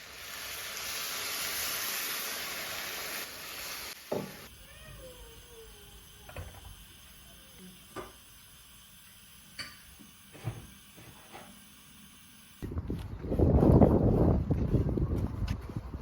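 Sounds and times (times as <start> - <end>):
faint hiss: 0.0 - 12.6
kitchenware clicks and taps: 9.6 - 10.6.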